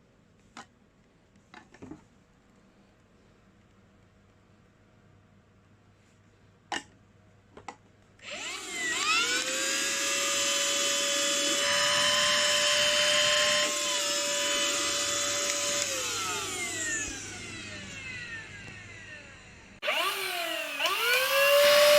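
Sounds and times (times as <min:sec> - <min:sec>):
vacuum motor whining: 0:08.2 - 0:21.9.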